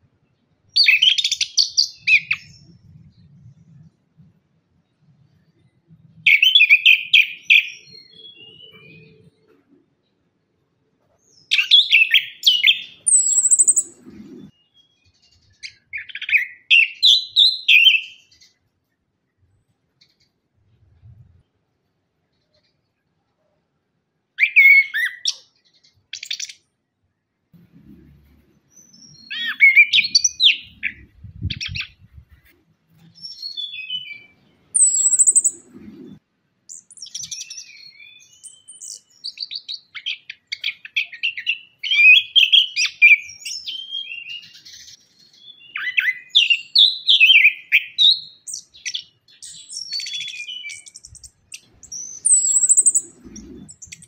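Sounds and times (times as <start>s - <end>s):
thrush singing whistles and trills: 0.8s - 3.3s, 11.4s - 18.4s, 24.4s - 25.5s, 28.8s - 32.1s, 33.0s - 54.0s
faint low rumbling: 27.6s - 28.8s, 30.6s - 32.6s.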